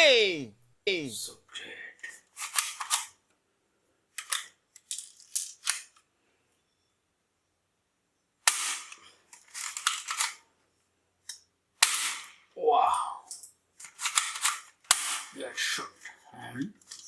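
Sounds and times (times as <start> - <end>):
plastic toy gun clicks and snaps: 4.2 - 6.0, 8.4 - 9.0, 11.3 - 12.4, 13.3 - 15.3.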